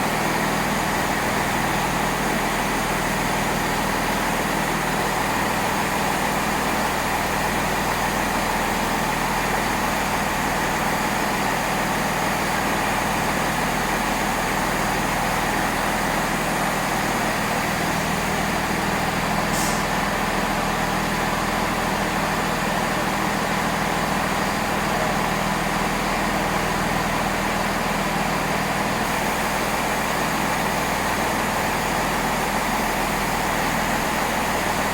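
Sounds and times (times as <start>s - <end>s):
train engine idling hum: 0.0s - 34.9s
short high air hiss: 19.5s - 20.0s.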